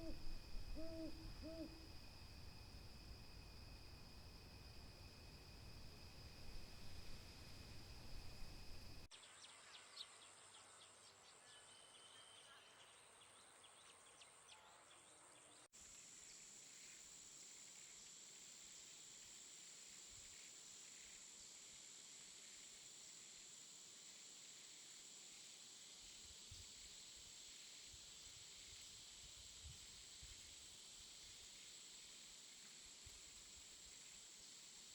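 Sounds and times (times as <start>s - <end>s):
insect trill: 0.0s - 9.1s.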